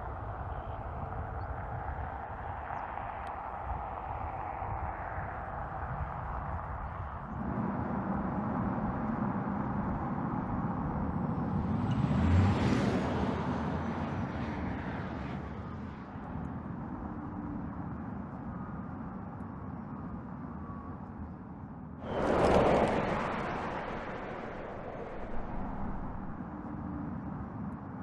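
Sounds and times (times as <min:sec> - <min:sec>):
electric car driving past: 0:22.0 - 0:26.4.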